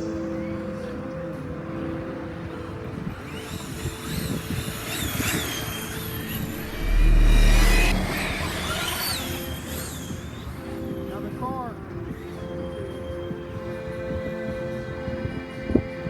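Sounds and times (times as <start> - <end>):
rc car electric motors whining: 2.6 - 11.1
loud low rumble: 6.0 - 10.0.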